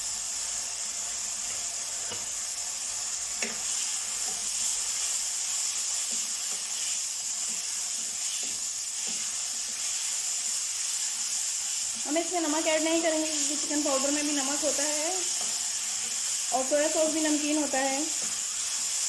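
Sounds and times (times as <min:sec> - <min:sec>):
chicken sizzling in hot oil: 0:00.0 - 0:19.0
wooden spatula stirring: 0:03.4 - 0:12.1.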